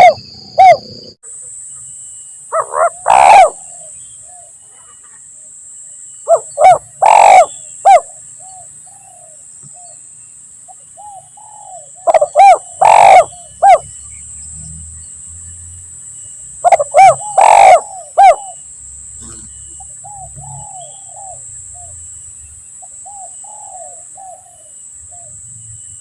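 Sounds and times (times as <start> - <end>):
dove cooing: 0.0 - 1.1, 2.5 - 3.9, 6.3 - 9.9, 11.0 - 13.8, 16.6 - 18.6, 19.2 - 21.9, 23.1 - 25.3
steady high hiss: 17.8 - 26.0.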